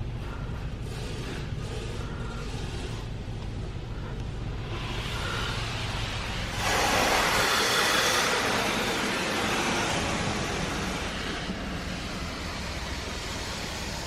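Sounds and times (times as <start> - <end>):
car wash machinery rumble: 0.0 - 14.0
water spray hissing on car: 4.7 - 14.0.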